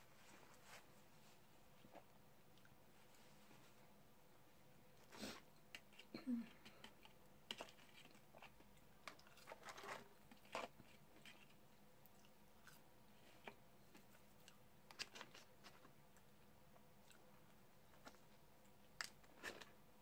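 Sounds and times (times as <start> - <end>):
person chewing fries: 6.9 - 16.4.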